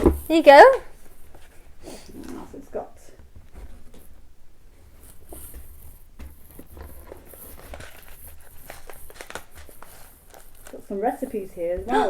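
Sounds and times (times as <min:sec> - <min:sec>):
paper packaging rustling: 0:04.8 - 0:12.0.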